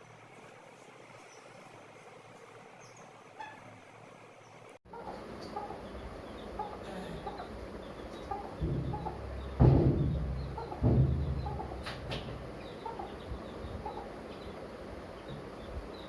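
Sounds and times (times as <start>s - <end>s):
chickens clucking: 4.9s - 16.0s.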